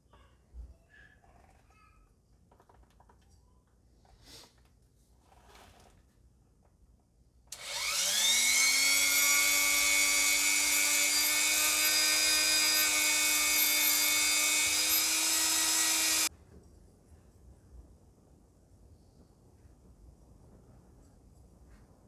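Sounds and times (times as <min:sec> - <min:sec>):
power tool motor whine: 0:07.6 - 0:16.3.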